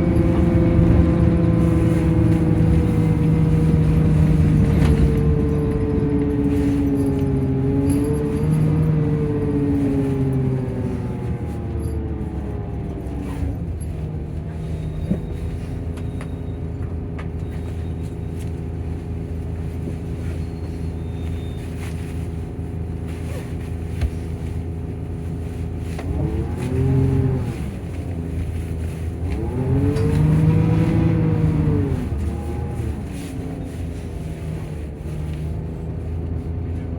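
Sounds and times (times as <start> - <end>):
diesel engine running: 0.0 - 36.9
engine cooling fan: 0.0 - 36.9.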